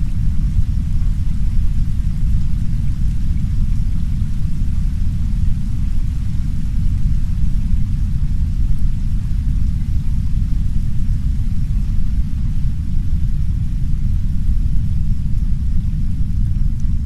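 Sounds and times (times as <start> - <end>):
heavy brown noise rumble: 0.0 - 17.0
soft rain on a window: 0.0 - 17.0.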